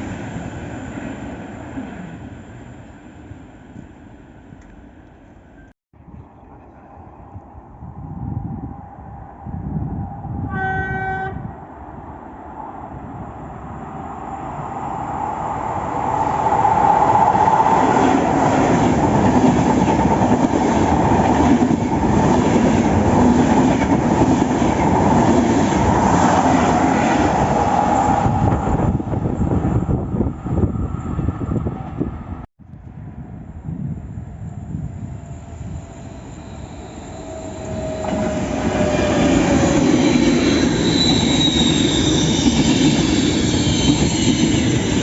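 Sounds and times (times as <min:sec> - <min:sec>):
train horn blast: 0:10.4 - 0:11.5
train wheels rumbling on rail: 0:15.1 - 0:45.0.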